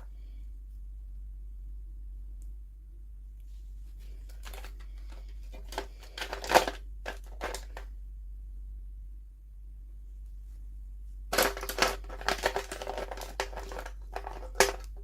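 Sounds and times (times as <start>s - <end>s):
steady low hum: 0.0s - 15.0s
plastic packaging crinkling: 4.1s - 7.9s, 11.3s - 15.0s.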